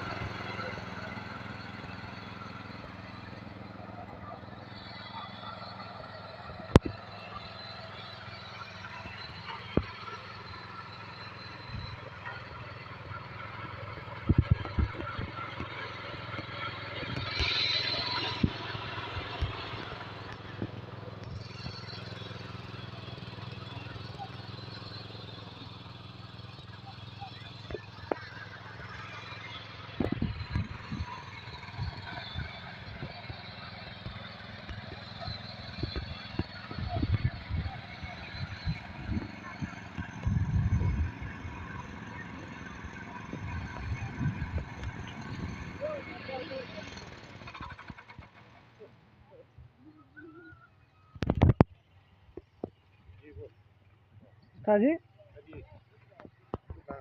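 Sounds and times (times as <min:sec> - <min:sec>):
tractor engine running: 0:00.0 - 0:57.0
sharp knocks and clatter: 0:14.0 - 0:22.1.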